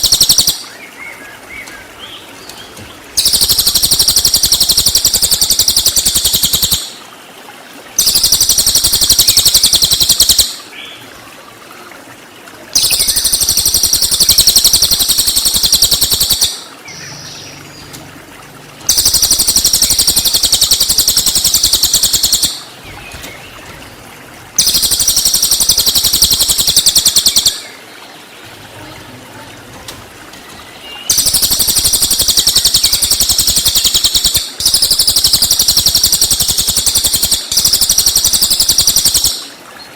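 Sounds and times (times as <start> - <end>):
songbird rapid high-pitched notes: 0.0 - 0.6, 3.2 - 6.9, 8.0 - 10.6, 12.8 - 17.9, 18.9 - 23.6, 24.6 - 27.8, 30.8 - 39.5.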